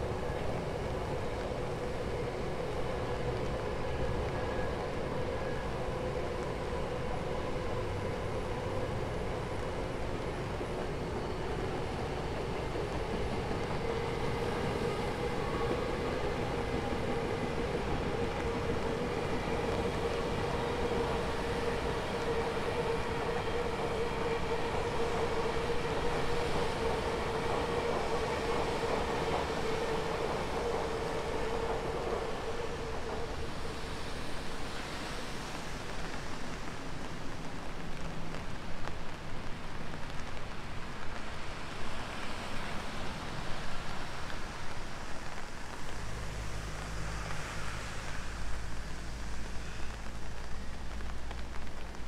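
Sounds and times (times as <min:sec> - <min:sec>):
train whining past: 0:00.0 - 0:37.3
rain hissing: 0:14.0 - 0:52.0.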